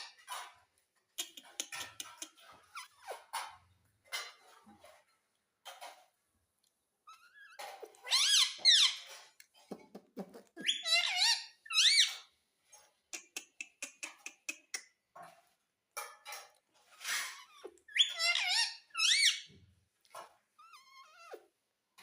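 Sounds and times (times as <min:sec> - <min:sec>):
parrot squawking: 0:07.2 - 0:09.1, 0:10.6 - 0:12.3, 0:17.2 - 0:19.5.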